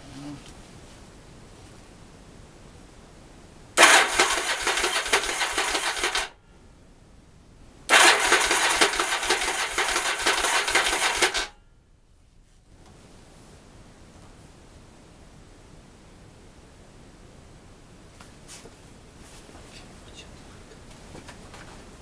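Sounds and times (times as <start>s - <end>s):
electric starter cranking engine: 3.8s - 6.4s, 7.9s - 11.5s.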